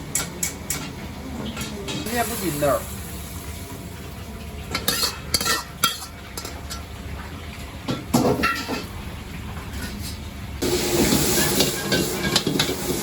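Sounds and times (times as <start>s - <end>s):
low kitchen hum: 0.0s - 13.0s
metal cookware clinking: 4.7s - 6.9s, 7.9s - 8.9s, 11.0s - 12.9s.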